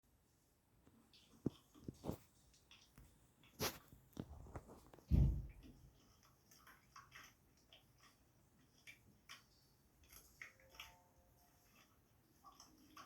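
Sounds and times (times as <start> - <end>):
clicks and rustles of handling: 0.8 - 11.0
dull thump: 5.1 - 5.6.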